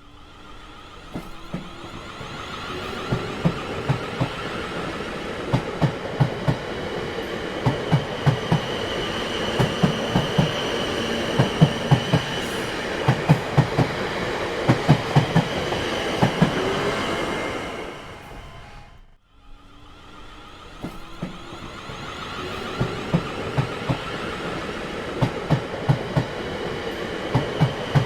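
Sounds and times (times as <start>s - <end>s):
train rolling past: 0.0s - 28.0s.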